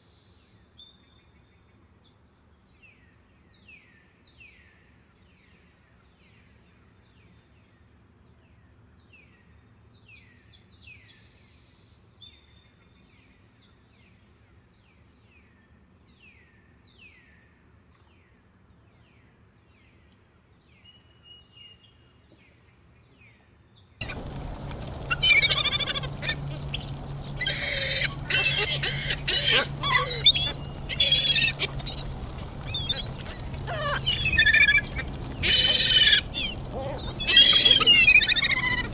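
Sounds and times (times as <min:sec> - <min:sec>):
birds singing: 0:24.0 - 0:38.9
down-slurred bird chirps: 0:24.0 - 0:38.9
insect trilling: 0:24.0 - 0:38.9.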